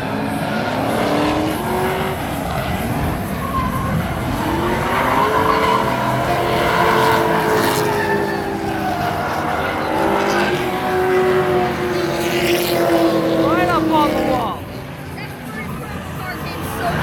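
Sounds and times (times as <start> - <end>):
car engines revving: 0.0 - 17.0
tyres screeching: 3.0 - 14.3.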